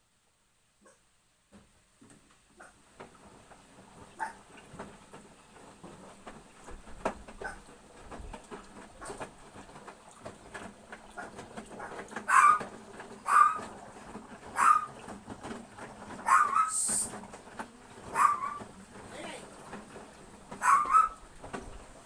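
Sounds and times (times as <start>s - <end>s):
dog barking: 0.8s - 1.0s, 4.2s - 4.4s, 11.8s - 13.7s, 14.5s - 15.0s, 16.2s - 16.9s, 18.1s - 18.6s, 20.6s - 21.2s.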